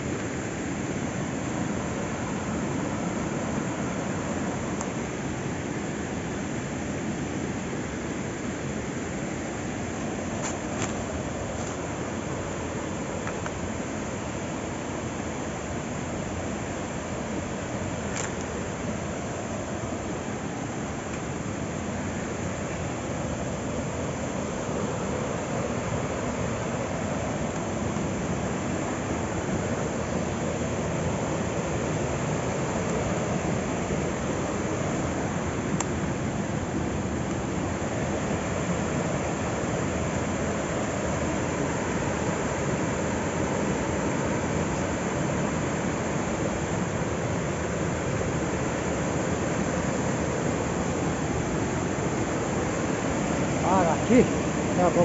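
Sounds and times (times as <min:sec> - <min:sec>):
small click: 0:10.4 - 0:11.0, 0:13.2 - 0:13.6, 0:18.1 - 0:18.5, 0:35.8 - 0:36.0
waterfall rushing: 0:37.8 - 0:55.0.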